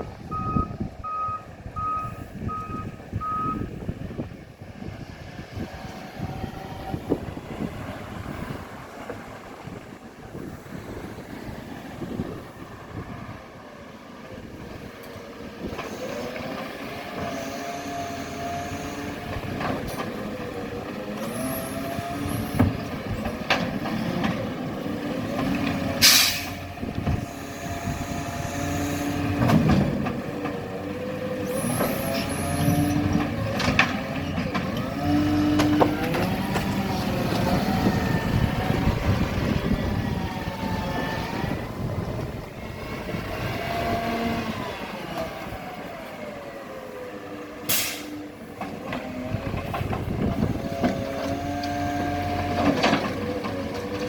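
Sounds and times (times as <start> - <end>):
garbage truck engine revving: 15.3 - 54.0.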